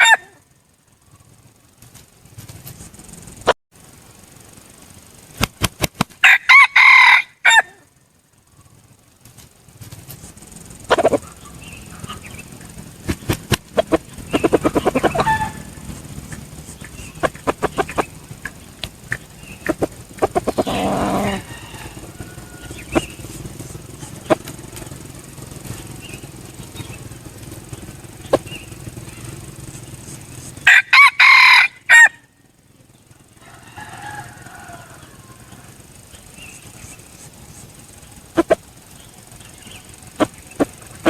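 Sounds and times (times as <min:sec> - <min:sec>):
rooster crowing: 0:00.0 - 0:00.4, 0:06.2 - 0:07.9, 0:13.8 - 0:16.4, 0:19.4 - 0:25.3, 0:30.6 - 0:32.4, 0:33.2 - 0:37.0
rapid pulsing clucks: 0:00.0 - 0:41.0.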